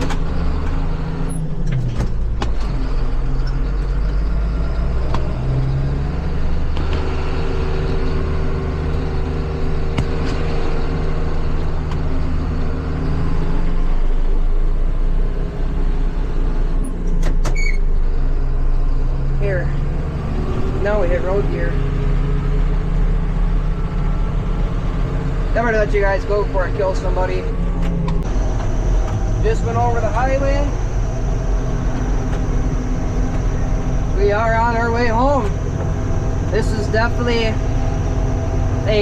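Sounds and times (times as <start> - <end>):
tractor engine shifting gears: 0.0 - 39.0.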